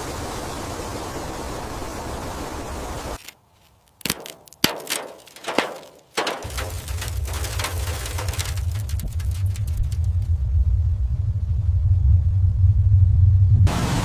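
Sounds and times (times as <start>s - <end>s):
low rumble: 6.5s - 13.8s.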